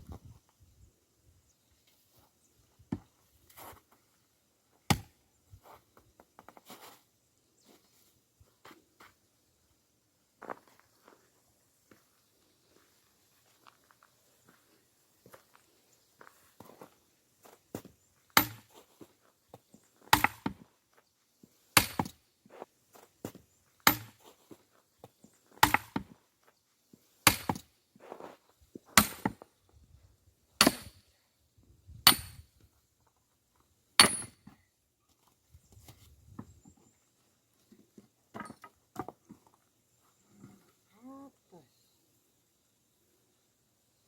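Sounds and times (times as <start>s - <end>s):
axe splitting logs: 4.9s - 5.1s, 18.4s - 18.8s, 20.1s - 20.7s, 21.8s - 22.2s, 23.8s - 24.2s, 25.6s - 26.2s, 27.2s - 27.7s, 29.0s - 29.4s, 30.6s - 31.0s, 32.0s - 32.4s, 34.0s - 34.6s.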